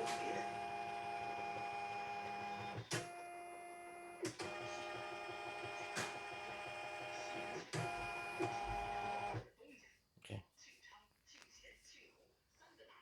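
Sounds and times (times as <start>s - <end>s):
embroidery machine motor whine: 0.0s - 9.4s.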